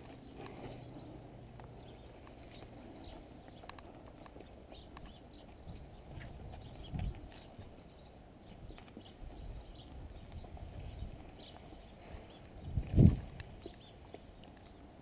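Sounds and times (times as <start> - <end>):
faint clicks and taps: 1.5 - 5.6.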